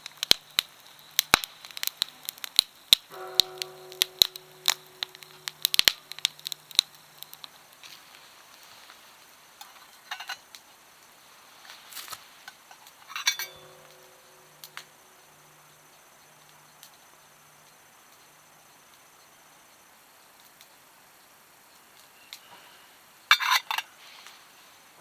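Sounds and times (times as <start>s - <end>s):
struck metal ringing: 3.1s - 7.7s, 13.2s - 15.7s
metal cookware clinking: 13.1s - 14.6s.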